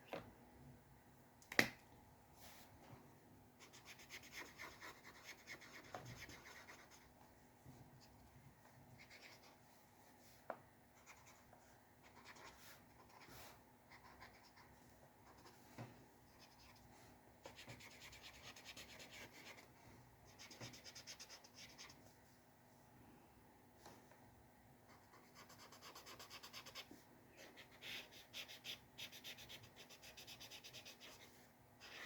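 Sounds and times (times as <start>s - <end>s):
pencil scratching on paper: 3.6s - 7.1s, 11.0s - 15.6s, 17.4s - 19.7s, 24.9s - 32.0s.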